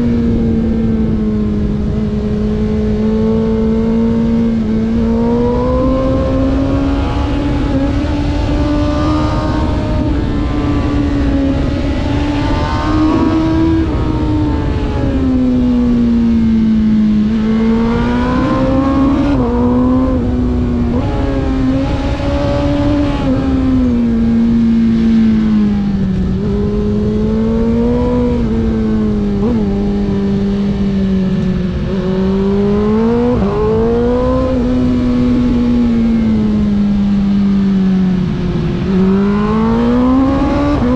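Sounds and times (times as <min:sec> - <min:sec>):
race engine revving: 0:02.4 - 0:30.2, 0:38.6 - 0:40.9.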